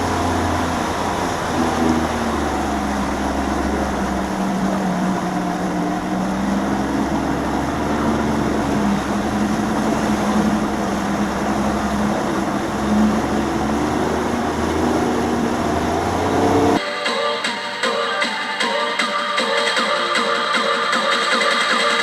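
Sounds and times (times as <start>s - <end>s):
outboard motor running: 0.0s - 16.8s.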